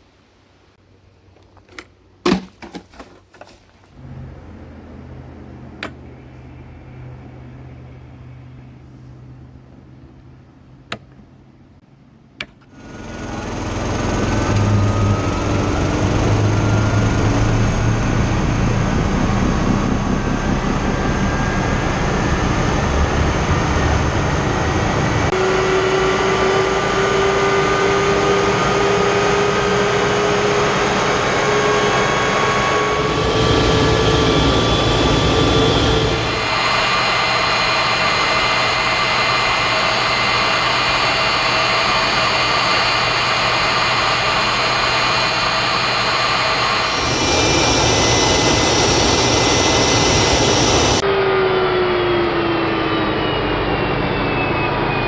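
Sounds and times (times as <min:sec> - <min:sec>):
jet engine roar: 0:04.0 - 0:10.6, 0:12.7 - 0:55.0
high whining tones: 0:12.8 - 0:55.0.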